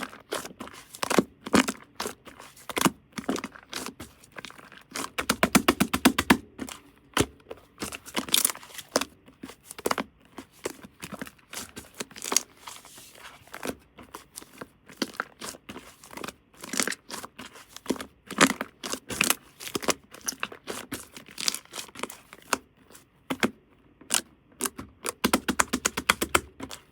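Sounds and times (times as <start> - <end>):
tearing and crinkling: 0.0 - 5.4, 7.5 - 22.6.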